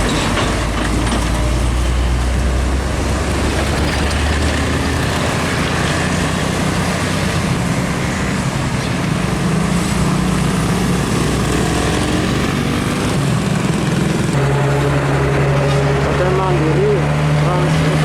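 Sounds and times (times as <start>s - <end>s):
heavy trucks passing: 0.0s - 18.0s
steady engine hum: 0.0s - 18.0s.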